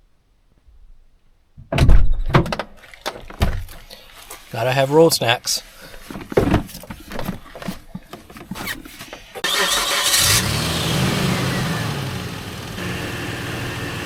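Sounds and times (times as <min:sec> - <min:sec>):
engine cranking: 0:08.4 - 0:14.0
engine running and revving: 0:09.4 - 0:14.0.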